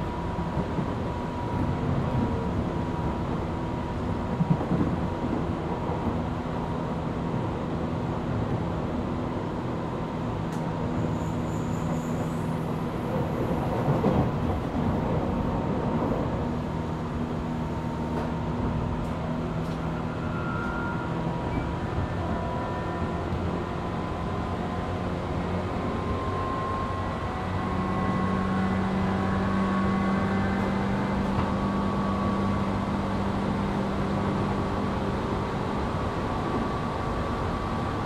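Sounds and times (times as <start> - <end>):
train rattle: 0.0 - 6.4, 10.5 - 26.2
train rumbling on rails: 0.0 - 38.0.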